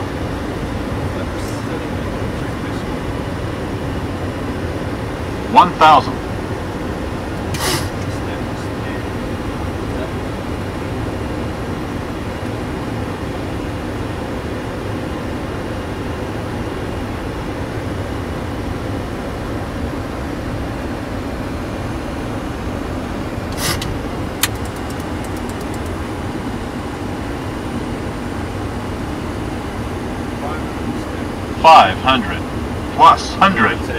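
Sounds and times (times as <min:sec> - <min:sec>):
airflow and engine noise: 0:00.0 - 0:33.9
sharp click: 0:23.5 - 0:25.9.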